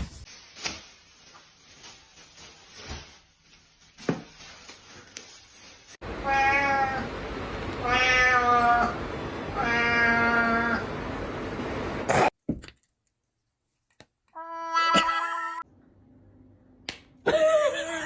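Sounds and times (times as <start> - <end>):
cat meowing: 7.8 - 9.0, 9.6 - 10.8.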